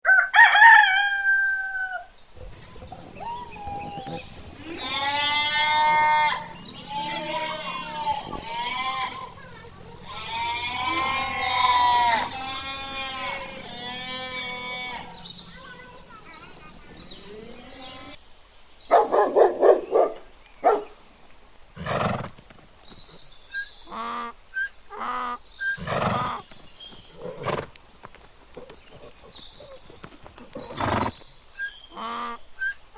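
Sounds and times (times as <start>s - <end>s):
goats or sheep bleating: 2.4s - 18.2s
short animal calls: 2.4s - 18.2s.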